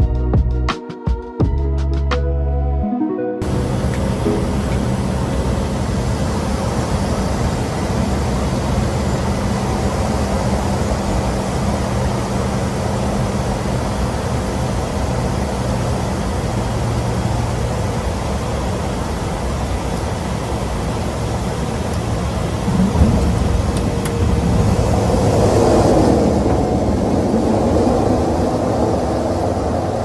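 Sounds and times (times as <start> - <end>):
propeller aircraft cabin drone: 3.4 - 30.0.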